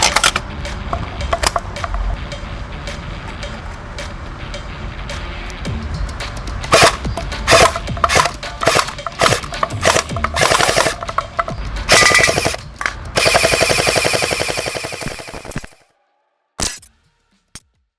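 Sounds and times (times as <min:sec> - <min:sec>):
toy gun firing: 0:00.0 - 0:00.4, 0:01.3 - 0:02.0, 0:06.7 - 0:15.8.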